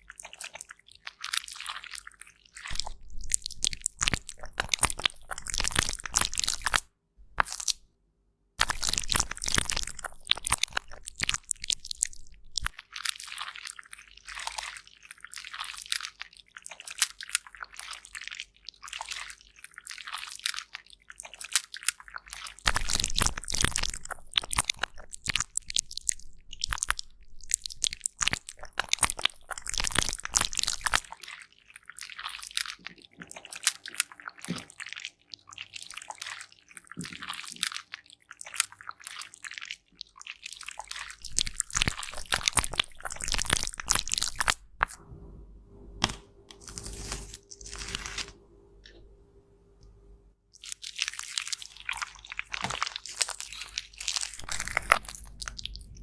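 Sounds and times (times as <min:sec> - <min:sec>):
powder crushing and scraping: 0:46.0 - 0:48.4, 0:50.7 - 0:55.8.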